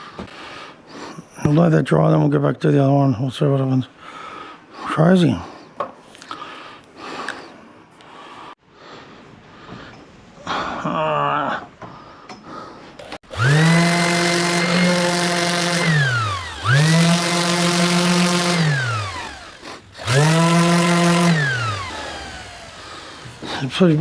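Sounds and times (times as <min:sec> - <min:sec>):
small electric motor spinning: 0:13.3 - 0:24.0.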